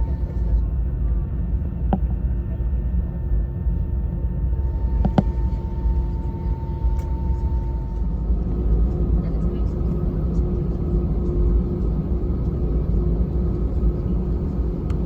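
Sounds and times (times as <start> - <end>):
aircraft cabin engine rumble: 0.0 - 15.0
faint steady hum: 0.0 - 15.0.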